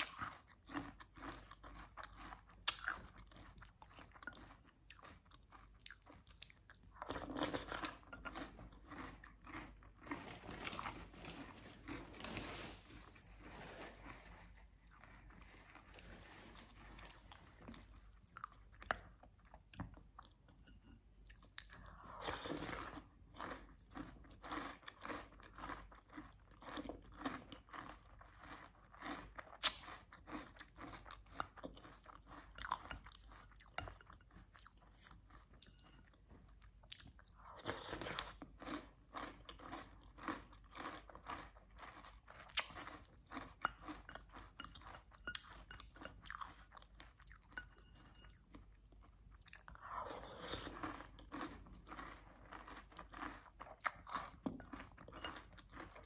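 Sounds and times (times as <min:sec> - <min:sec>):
chewing crunchy cereal: 0:00.0 - 0:56.0.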